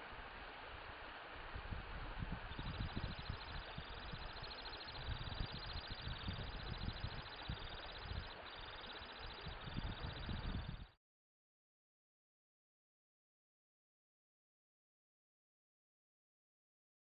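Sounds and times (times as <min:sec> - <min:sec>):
wind rumble on microphone: 0:00.8 - 0:11.0
bird trilling: 0:02.5 - 0:10.7.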